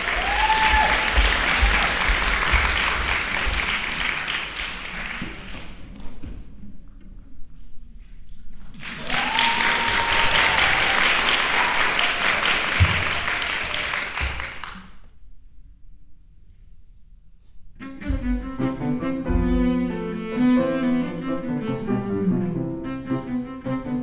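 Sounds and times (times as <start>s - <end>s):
audience applauding: 0.0s - 6.0s, 8.7s - 15.1s
cello playing: 17.8s - 24.0s.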